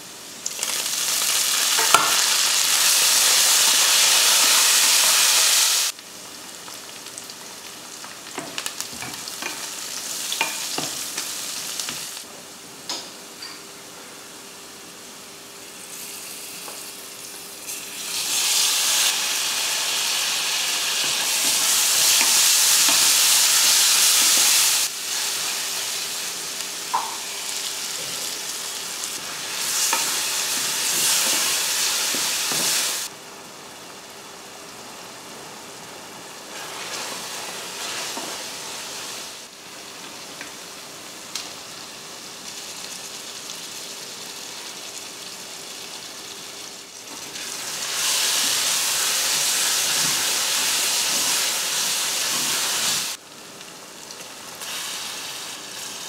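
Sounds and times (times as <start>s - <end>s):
spices sizzling in pot: 0.0s - 13.6s, 15.3s - 33.1s, 33.7s - 56.0s.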